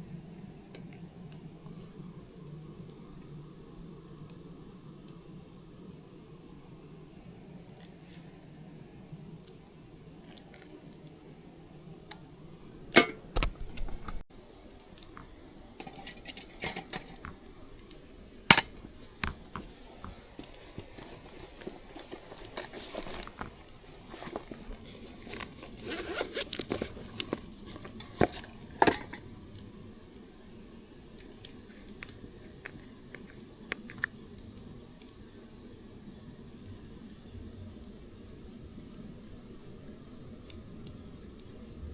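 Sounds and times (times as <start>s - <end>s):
objects being handled: 14.8s - 29.3s.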